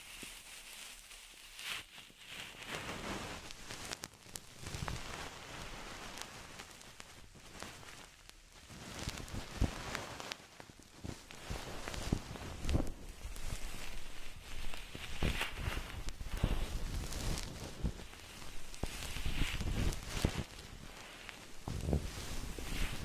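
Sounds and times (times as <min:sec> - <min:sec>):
rustling and crackling: 0:00.0 - 0:23.0
soft low thumps: 0:21.5 - 0:23.0.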